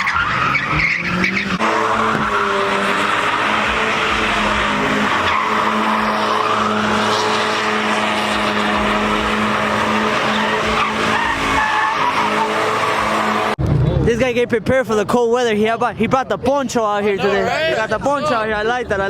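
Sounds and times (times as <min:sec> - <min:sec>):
engine revving high: 0:00.0 - 0:13.6
tyre squeal: 0:00.0 - 0:13.6.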